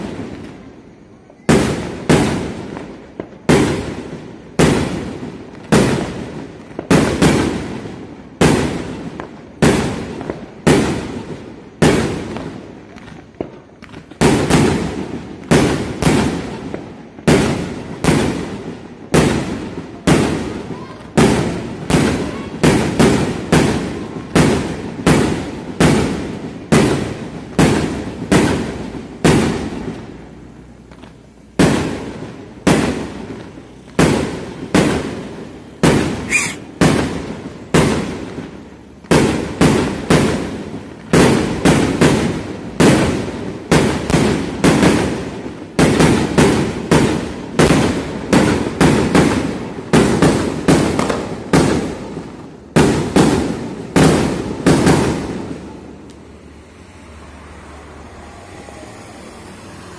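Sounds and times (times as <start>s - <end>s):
fireworks banging: 0.0s - 59.9s
high whistle: 36.2s - 36.7s.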